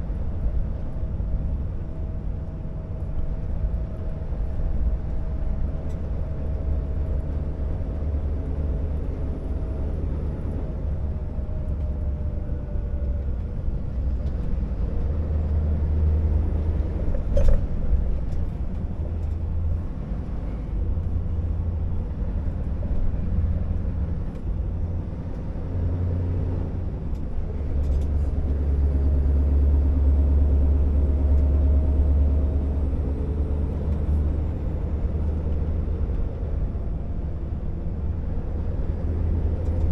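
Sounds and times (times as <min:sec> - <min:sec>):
truck diesel engine droning: 0:00.0 - 0:39.9.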